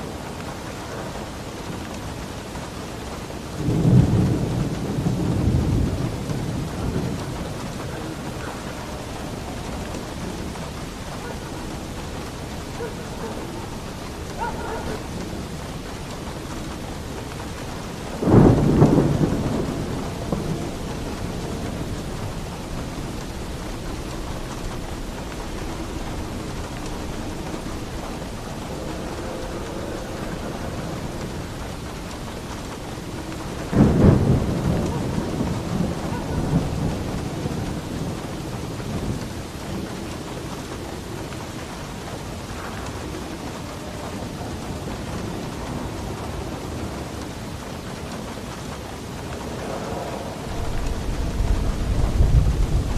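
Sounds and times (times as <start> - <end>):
heavy rain on a roof: 0.0 - 52.9
thunderclaps rumbling: 0.0 - 52.9.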